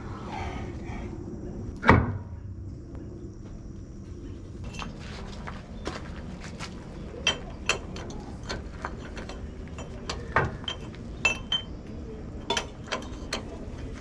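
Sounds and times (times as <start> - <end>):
metal tools clinking and clanking: 4.6 - 5.9, 6.9 - 14.0.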